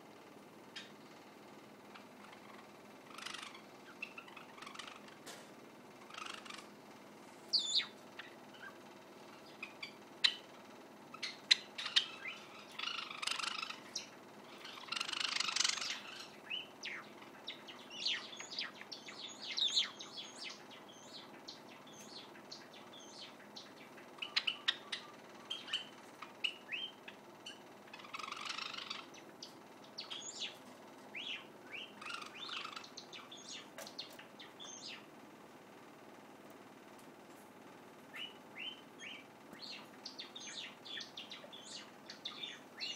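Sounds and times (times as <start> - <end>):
bird buzzy song phrases: 0.0 - 36.9, 37.6 - 42.9
bird clicks and high chirps: 11.2 - 30.6.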